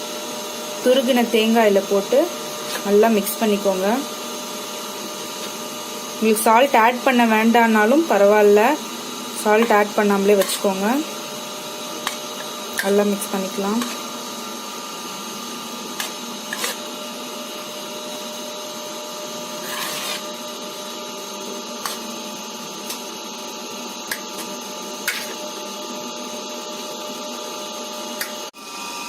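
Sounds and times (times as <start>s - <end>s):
short scrape in a bowl: 15.9s - 16.9s, 19.5s - 20.4s.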